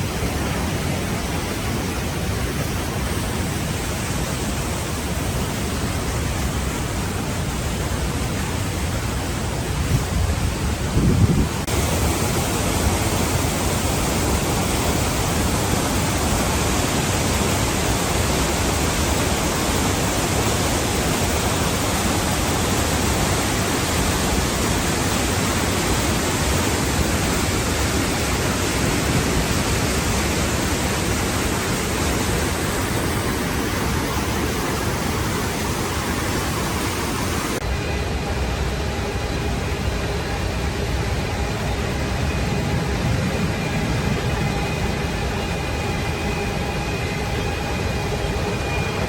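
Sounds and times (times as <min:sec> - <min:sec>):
waterfall roaring: 0:00.0 - 0:49.0.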